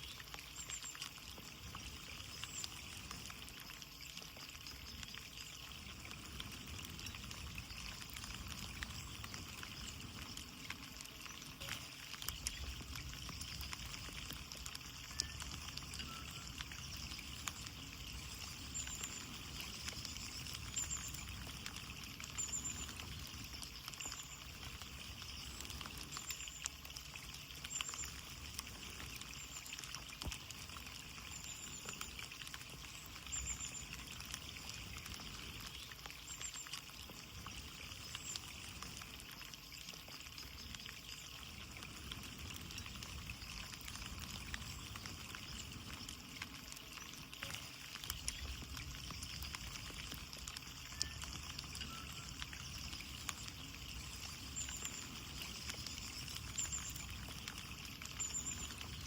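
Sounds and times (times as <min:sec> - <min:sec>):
rain pattering on a window: 0:00.0 - 0:59.0
faint high chirp: 0:14.8 - 0:26.7, 0:50.6 - 0:59.0.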